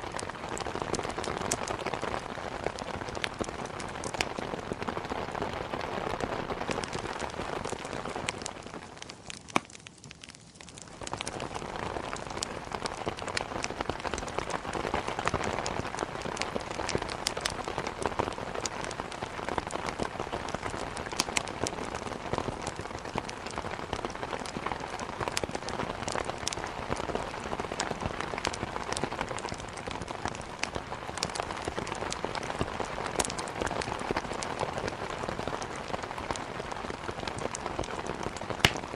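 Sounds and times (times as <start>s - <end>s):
rain pattering on a window: 0.0s - 38.9s
wood fire crackling: 0.0s - 38.9s.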